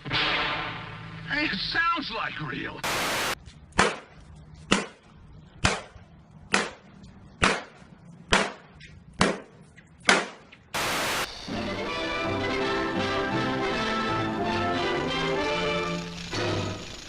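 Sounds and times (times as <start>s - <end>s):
burst of static: 2.8s - 3.4s, 10.8s - 11.4s.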